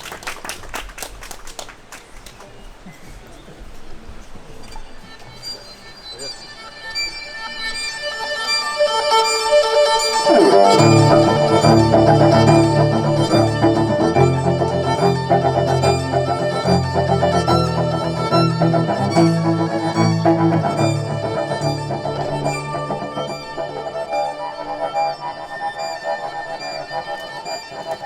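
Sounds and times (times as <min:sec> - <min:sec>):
live band playing: 0:09.1 - 0:25.8.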